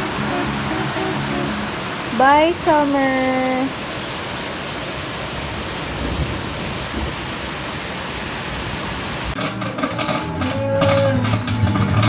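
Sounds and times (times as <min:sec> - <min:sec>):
music: 0:00.0 - 0:02.5, 0:09.4 - 0:12.0
heavy rain falling: 0:00.0 - 0:12.0.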